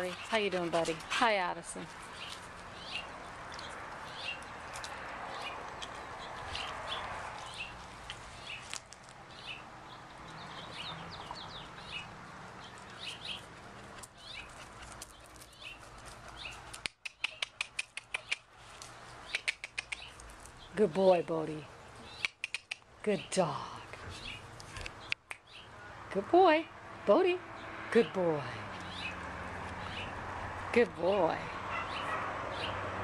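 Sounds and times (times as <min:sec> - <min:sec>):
dog panting: 0:00.0 - 0:02.4, 0:12.8 - 0:18.3
small birds chirping: 0:00.0 - 0:26.0, 0:28.7 - 0:30.2, 0:31.7 - 0:32.8.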